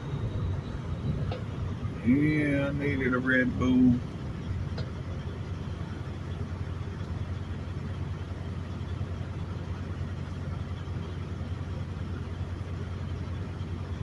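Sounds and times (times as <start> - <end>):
diesel truck engine drone: 0.0 - 14.0.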